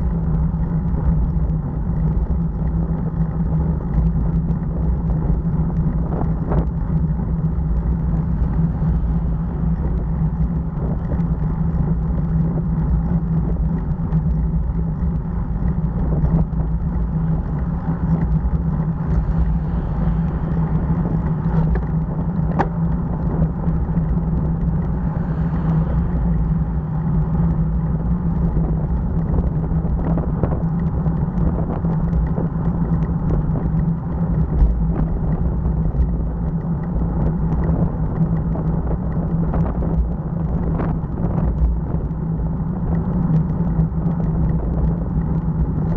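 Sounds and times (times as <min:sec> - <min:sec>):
motorcycle engine drone: 0:00.0 - 0:45.9
wind and road noise: 0:00.0 - 0:45.9.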